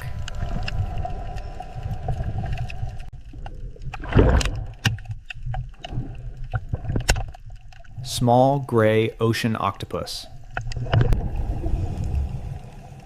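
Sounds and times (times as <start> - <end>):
rough low rumble: 0.0 - 7.0
water sloshing and splashing: 0.0 - 8.2, 10.3 - 13.0.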